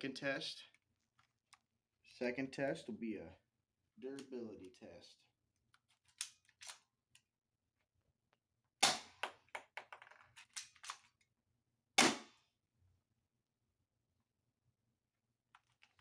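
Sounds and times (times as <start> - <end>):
sharp gunshots: 12.0 - 12.3.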